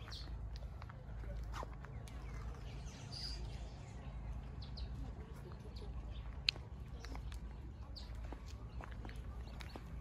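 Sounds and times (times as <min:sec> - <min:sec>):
bird chirps: 0:01.8 - 0:05.0.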